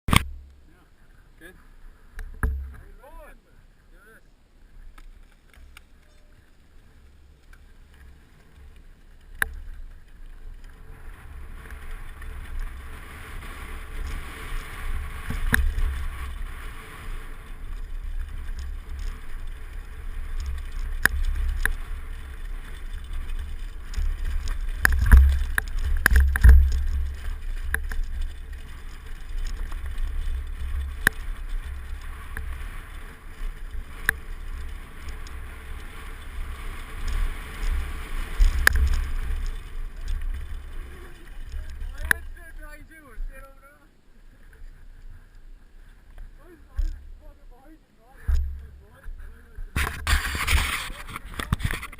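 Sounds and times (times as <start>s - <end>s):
bicycle rolling noise: 0.1s - 51.9s
clicks and knocks from bumps: 17.8s - 42.4s, 49.8s - 51.9s.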